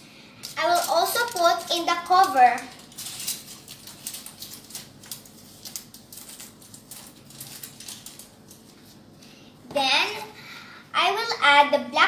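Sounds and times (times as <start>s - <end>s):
aluminium foil crinkling: 0.4s - 9.1s.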